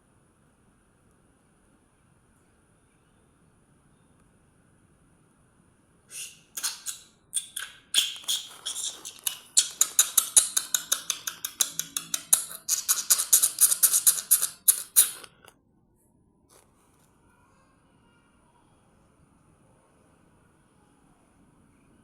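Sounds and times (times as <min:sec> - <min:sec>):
small birds chirping: 0:06.1 - 0:15.2.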